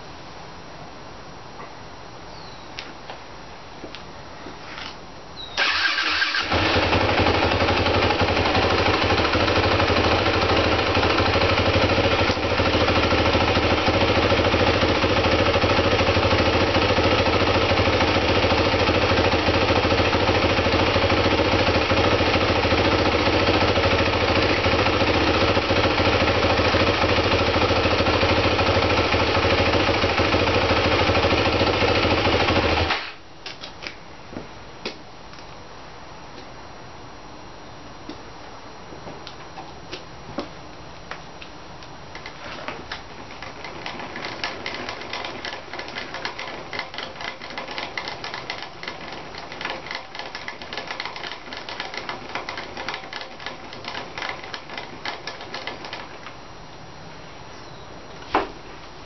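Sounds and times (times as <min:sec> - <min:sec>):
dirt bike engine idling: 0:05.6 - 0:33.0, 0:42.2 - 0:56.3.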